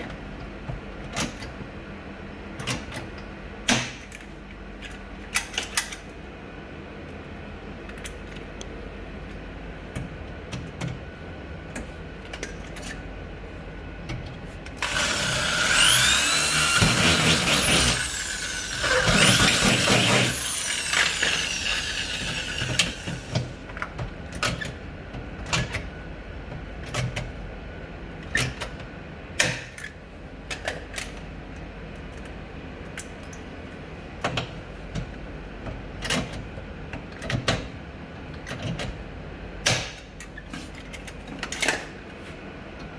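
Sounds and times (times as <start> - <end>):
clicks and knocks of parts handled: 11.7 - 13.1, 28.2 - 33.4, 39.6 - 42.0
power tool motor whining: 14.8 - 23.3.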